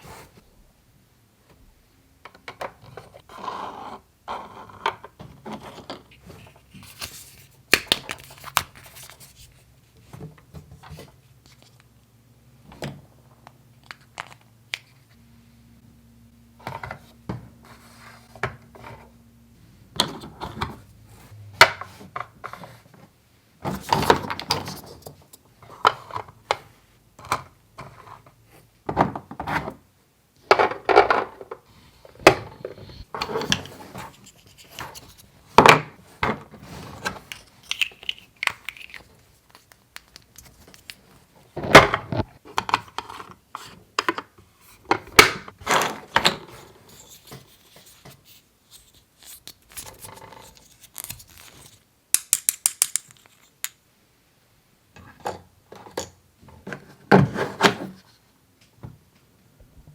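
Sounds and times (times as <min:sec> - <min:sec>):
toy pieces rubbing and scraping: 0:33.2 - 0:35.4, 0:36.6 - 0:41.2, 0:46.5 - 0:53.8
toy pieces clicking and knocking: 0:37.3 - 0:41.0, 0:51.5 - 0:53.8.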